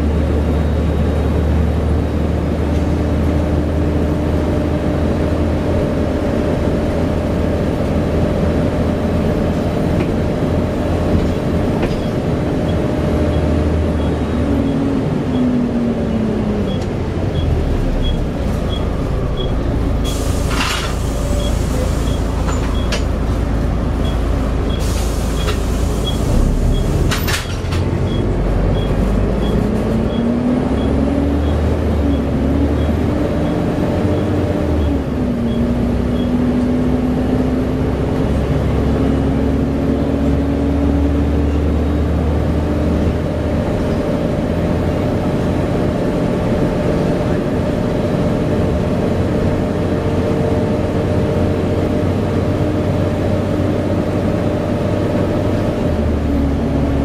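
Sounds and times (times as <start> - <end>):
bus diesel engine droning: 0.0 - 57.0
short air hisses: 20.0 - 22.1, 24.8 - 26.3.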